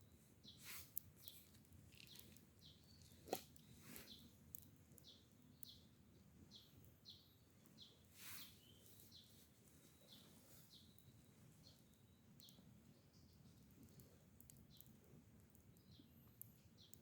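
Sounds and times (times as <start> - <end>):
brief hiss: 8.2 - 8.6.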